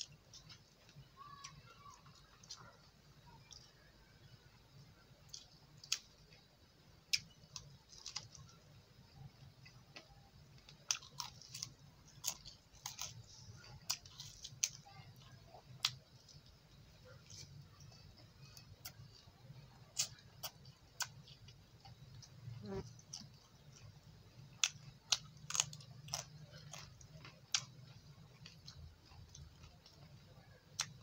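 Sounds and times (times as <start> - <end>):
faint low hum: 0.0 - 31.0
chewing and mouth smacking: 10.6 - 23.9, 24.6 - 30.1.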